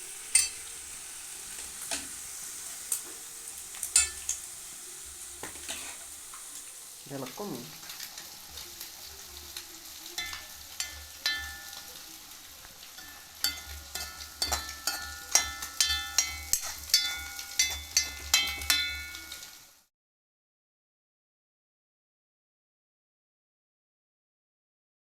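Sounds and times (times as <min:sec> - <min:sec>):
beans sizzling in a pan: 0:00.0 - 0:19.9
metal spoon scraping and knocking pan: 0:00.2 - 0:00.8, 0:03.8 - 0:04.5, 0:05.4 - 0:06.1, 0:10.2 - 0:12.0, 0:13.0 - 0:19.5.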